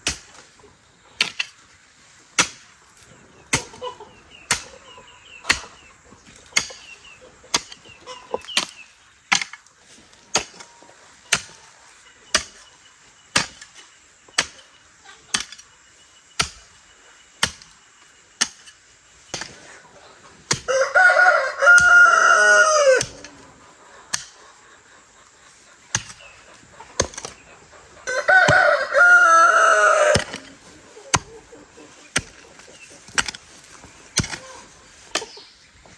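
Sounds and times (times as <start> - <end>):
rooster crowing: 20.6 - 23.2, 28.0 - 30.5.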